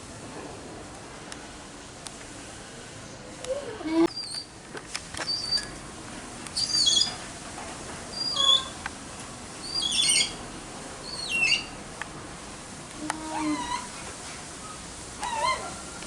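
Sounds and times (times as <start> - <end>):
animal high-pitched chirping calls: 4.1 - 4.5, 5.3 - 5.7, 6.6 - 7.2, 8.1 - 8.8, 9.6 - 10.4, 11.0 - 11.8, 13.2 - 13.9, 15.2 - 16.0.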